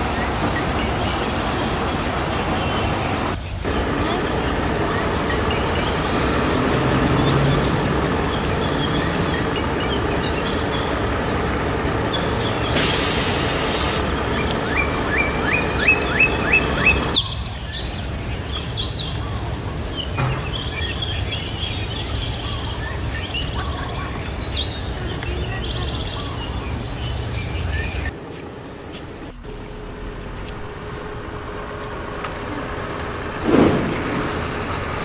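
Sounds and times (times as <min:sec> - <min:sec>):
birds chirping: 0:00.0 - 0:28.2, 0:33.1 - 0:35.0
high insect drone: 0:00.0 - 0:28.4, 0:29.0 - 0:35.0
low rumble: 0:33.4 - 0:35.0.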